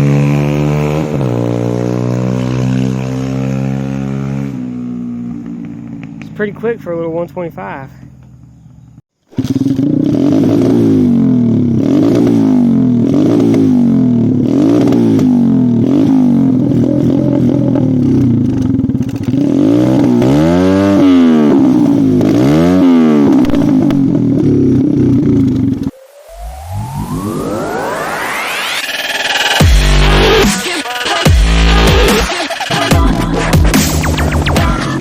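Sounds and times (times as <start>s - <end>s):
motorbike engine revving: 0.0s - 7.2s, 8.1s - 35.0s.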